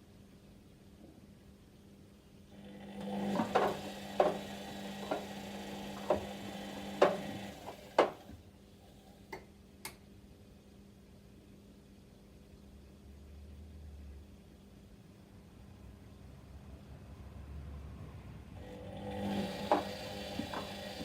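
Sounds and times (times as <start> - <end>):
washing machine motor hum: 2.5 - 8.4, 18.5 - 21.0
drum clicks and knocks: 6.0 - 8.2.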